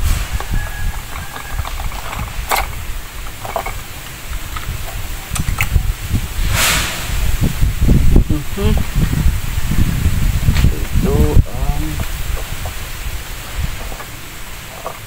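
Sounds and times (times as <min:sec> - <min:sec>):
short hiss: 0:00.0 - 0:01.6, 0:06.3 - 0:07.8
steady low rumble: 0:00.0 - 0:15.0.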